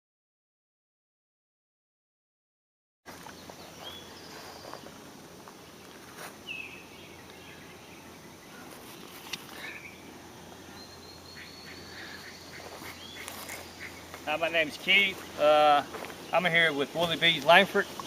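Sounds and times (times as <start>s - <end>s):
steady background hiss: 3.1s - 18.0s
bird chirps: 3.2s - 5.0s, 6.4s - 18.0s.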